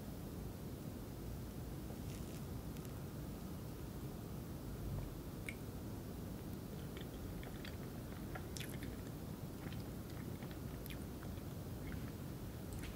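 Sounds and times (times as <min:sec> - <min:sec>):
low room noise: 0:00.0 - 0:12.9
wet mouth clicks chewing: 0:06.8 - 0:12.9.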